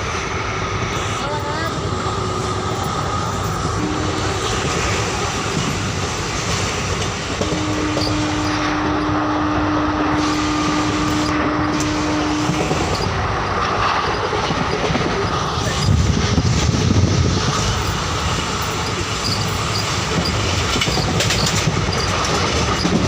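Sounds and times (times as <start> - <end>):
steady tone: 0.0 - 6.0
train wheels on rails: 0.0 - 23.0.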